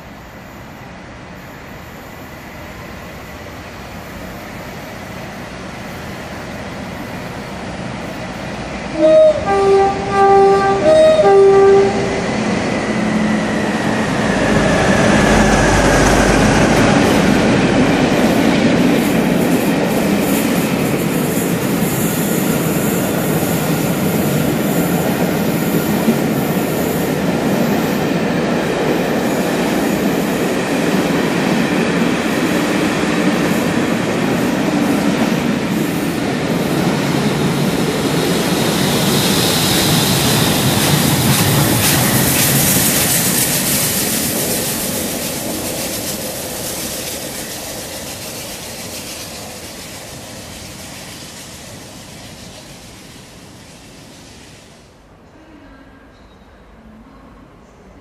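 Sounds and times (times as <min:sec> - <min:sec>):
train wheels rumbling on rails: 0:00.0 - 0:55.2
train horn: 0:08.9 - 0:12.3.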